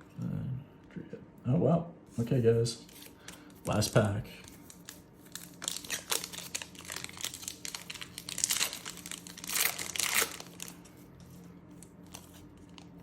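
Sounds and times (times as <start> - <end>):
wrapper tearing and crinkling: 4.4 - 10.9.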